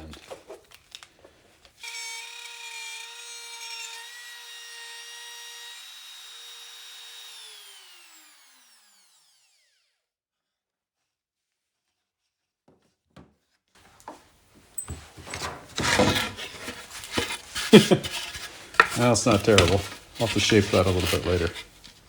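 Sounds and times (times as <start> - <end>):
wood router whining: 1.8 - 10.0, 13.9 - 22.0.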